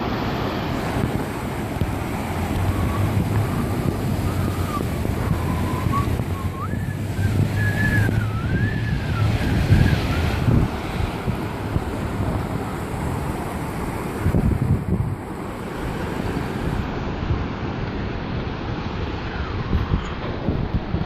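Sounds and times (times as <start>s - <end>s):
rushing river water: 0.0s - 21.0s
wind buffeting microphone: 0.0s - 21.0s.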